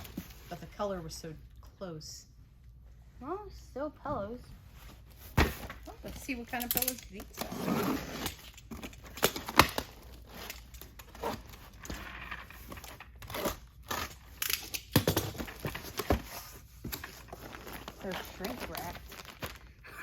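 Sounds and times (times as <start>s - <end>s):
plastic wrap crinkling: 17.0s - 19.9s.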